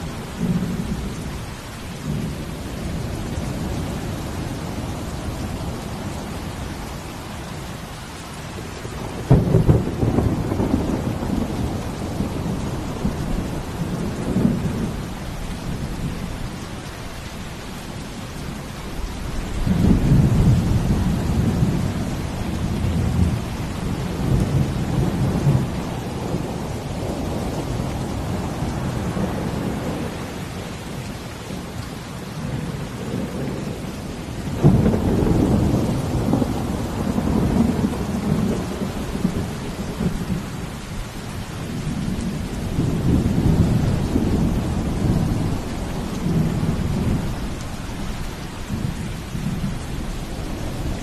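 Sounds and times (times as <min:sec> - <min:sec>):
rain hissing: 0:00.0 - 0:51.0
thunder rumbling: 0:08.6 - 0:16.6, 0:19.5 - 0:31.6, 0:32.4 - 0:51.0.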